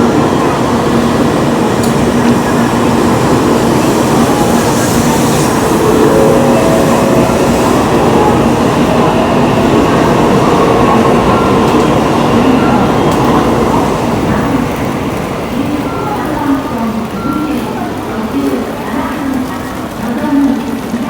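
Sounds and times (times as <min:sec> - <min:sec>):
train running on track: 0:00.0 - 0:21.0
faint steady tones: 0:04.2 - 0:19.4.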